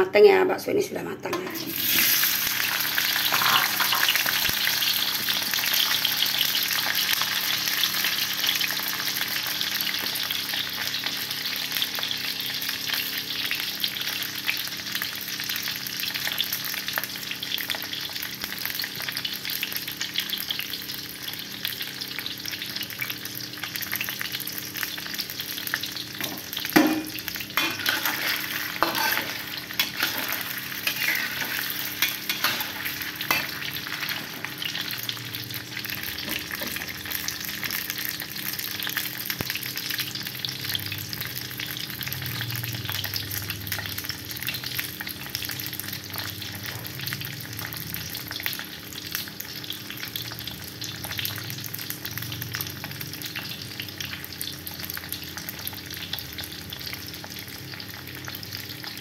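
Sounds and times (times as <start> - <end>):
meatballs sizzling in hot oil: 1.4 - 59.0
metal spatula scraping wok: 3.2 - 4.3, 26.9 - 34.5.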